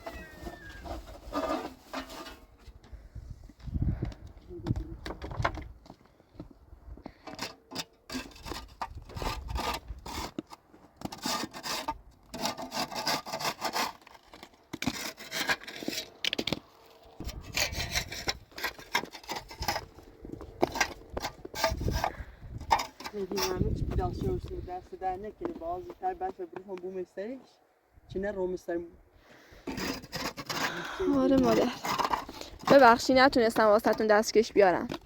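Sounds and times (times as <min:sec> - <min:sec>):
rough scraping and rubbing: 0:00.0 - 0:02.7, 0:07.8 - 0:26.2, 0:29.5 - 0:34.9.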